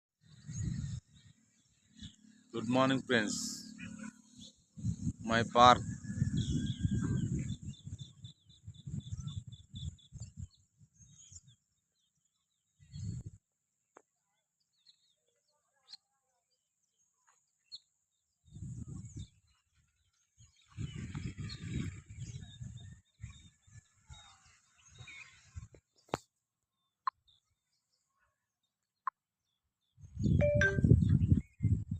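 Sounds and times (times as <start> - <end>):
bird chirping: 29.9 - 31.8.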